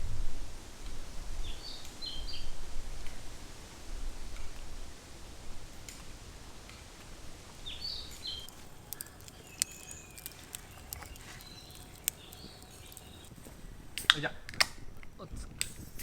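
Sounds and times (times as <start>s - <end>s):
bird chirping: 7.6s - 13.4s
sharp clicks and ticks: 8.3s - 13.4s.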